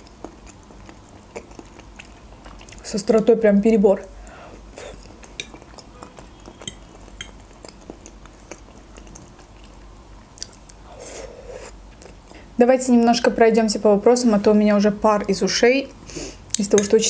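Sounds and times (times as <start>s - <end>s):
quiet close-miked chewing: 0.0s - 3.3s, 4.2s - 12.5s
short breath: 4.2s - 4.6s, 16.0s - 16.5s
wet mouth clicks: 4.6s - 9.7s.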